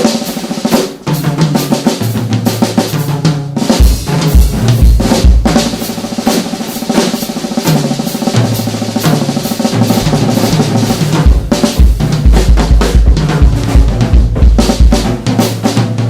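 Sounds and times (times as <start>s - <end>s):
snare drum rolls: 0.0s - 16.0s
bass drum hits: 9.8s - 15.1s.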